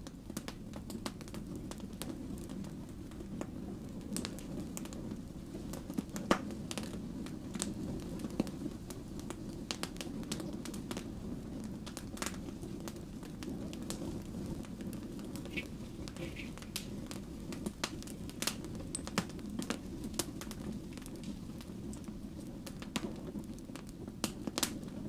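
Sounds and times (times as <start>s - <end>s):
firewood crackling and popping: 0.0s - 25.0s
low rush of flame: 0.0s - 25.0s.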